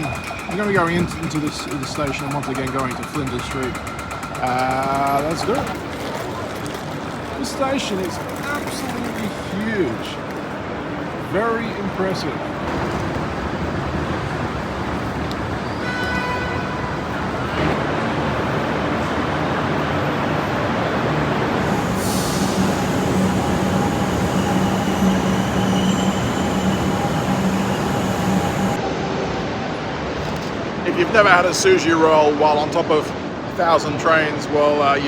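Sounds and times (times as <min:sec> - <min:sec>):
train rumbling on rails: 0:00.0 - 0:35.0
steady whine: 0:21.5 - 0:29.7.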